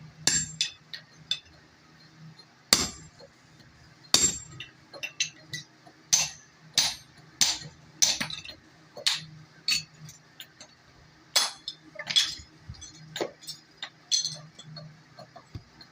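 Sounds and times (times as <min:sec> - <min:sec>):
hammer striking metal on anvil: 0:00.2 - 0:01.4, 0:02.7 - 0:03.1, 0:04.1 - 0:04.6, 0:06.1 - 0:08.5.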